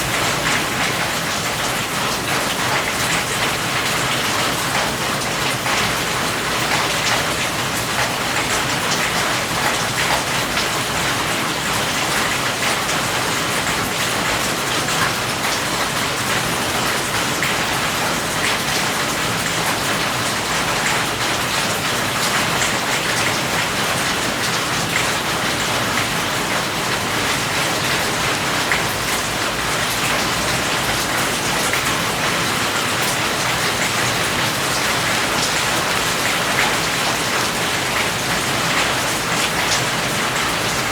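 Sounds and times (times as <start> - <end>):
rain patter on hard surface: 0.0 - 40.9
steady rain hissing: 0.0 - 40.9.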